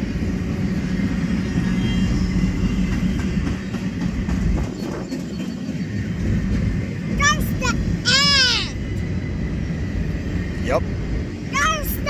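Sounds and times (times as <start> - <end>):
freight train rumbling past: 0.0 - 12.0
train wheels clacking: 1.6 - 8.3.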